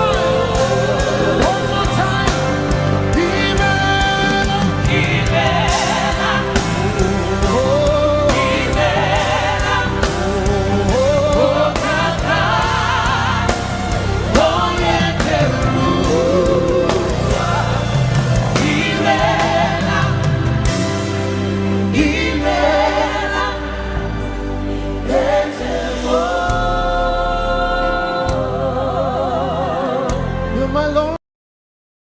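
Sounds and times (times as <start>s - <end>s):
steady drum beat: 0.0s - 27.2s
band sustained chords: 0.0s - 31.0s
choir singing: 0.0s - 31.1s
lead voice singing with vibrato: 0.0s - 31.2s.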